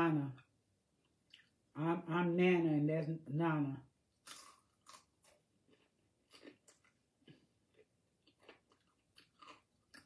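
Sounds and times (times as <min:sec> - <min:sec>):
crunchy chewing of fried fish: 0:04.2 - 0:10.0.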